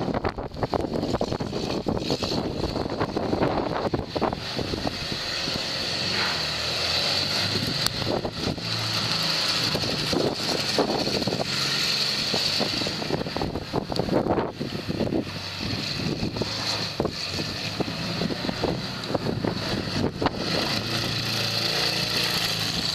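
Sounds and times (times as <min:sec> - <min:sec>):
wind noise on microphone: 0:00.0 - 0:22.9.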